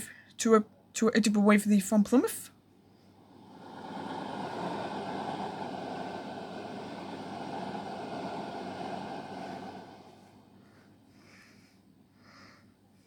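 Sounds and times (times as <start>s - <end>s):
train rushing rumble: 3.3s - 10.5s.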